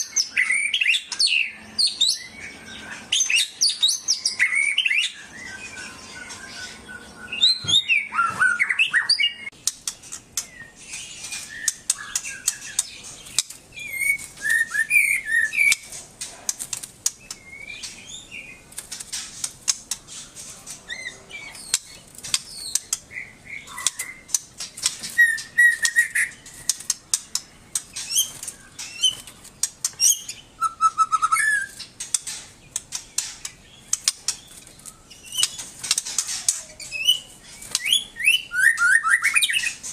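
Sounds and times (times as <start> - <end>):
songbird chirping and whistling: 0.0 - 15.9, 17.1 - 18.7, 20.1 - 39.9
sharp clicks: 31.8 - 36.7.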